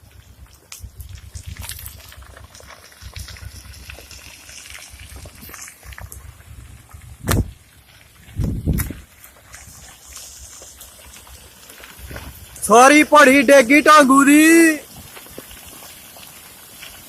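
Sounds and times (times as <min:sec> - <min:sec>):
low rumble on microphone: 0:00.0 - 0:12.6
floodwater rushing: 0:00.0 - 0:17.0.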